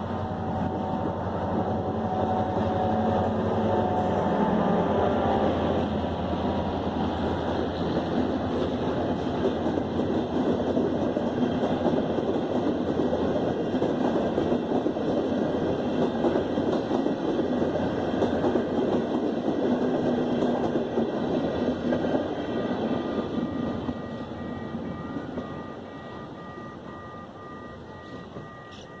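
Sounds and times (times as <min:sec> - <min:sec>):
train rumbling and clattering: 0:00.0 - 0:29.0
two-tone beeping: 0:22.1 - 0:29.0.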